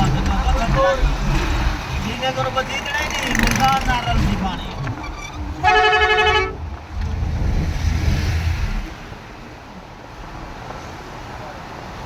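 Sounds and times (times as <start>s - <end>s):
vehicle engine passing by: 0.0s - 10.0s
vehicle horn: 3.0s - 6.6s.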